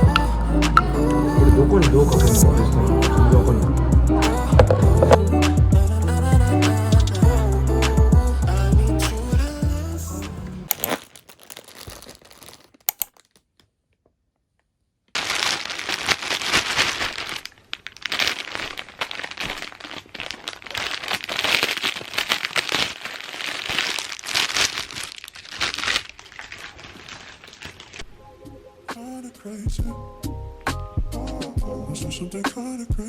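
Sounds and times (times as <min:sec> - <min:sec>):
packaging crinkling and rustling: 0:10.7 - 0:14.0, 0:15.1 - 0:28.2
small clicks: 0:12.7 - 0:13.7.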